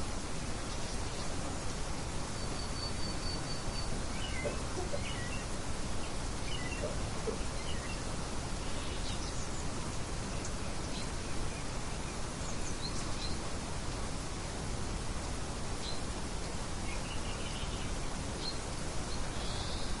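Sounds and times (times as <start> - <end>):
steady rushing hiss: 0.0 - 20.0
birds chirping: 0.6 - 11.2.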